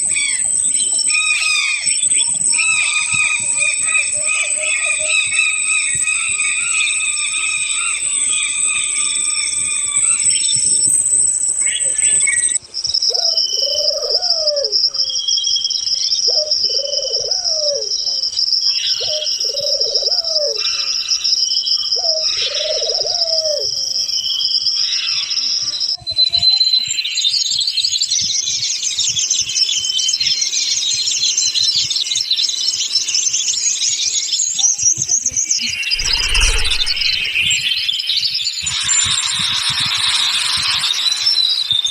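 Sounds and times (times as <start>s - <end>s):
dense chorus of high chirping: 0.0s - 12.6s, 35.6s - 37.7s, 38.6s - 41.9s
low cooing bird call: 13.1s - 15.2s, 16.3s - 18.2s, 18.9s - 20.9s, 22.0s - 24.0s, 35.8s - 37.5s.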